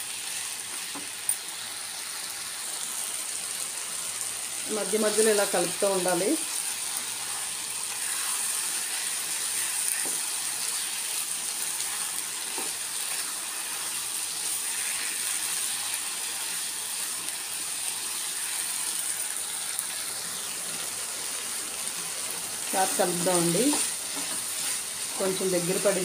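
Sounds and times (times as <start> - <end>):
food sizzling in a pan: 0.0 - 26.0
wooden spatula scraping: 22.8 - 26.0.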